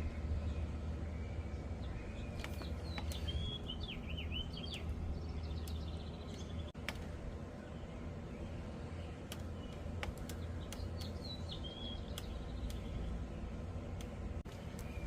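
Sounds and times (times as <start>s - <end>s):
small birds chirping: 0.0s - 15.0s
steady low hum: 0.0s - 15.0s
sharp clicks: 2.4s - 3.4s, 5.6s - 7.2s, 9.2s - 13.1s, 13.9s - 15.0s.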